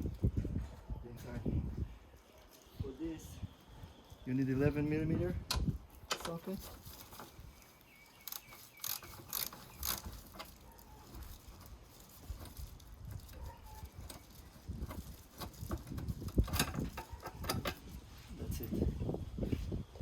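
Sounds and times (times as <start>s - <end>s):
ratchet clicking: 8.2s - 10.6s.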